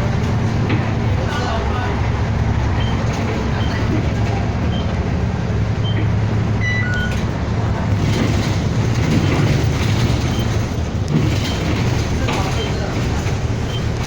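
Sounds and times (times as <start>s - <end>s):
bus engine and road rumble: 0.0s - 14.0s
short high beeps: 6.6s - 7.2s.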